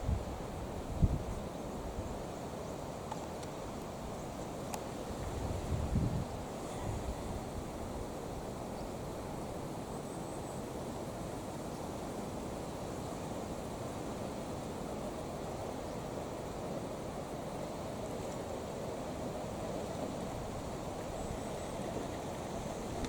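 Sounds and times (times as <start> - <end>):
wind blowing across microphone: 0.0 - 2.4, 3.4 - 9.8, 13.4 - 23.0.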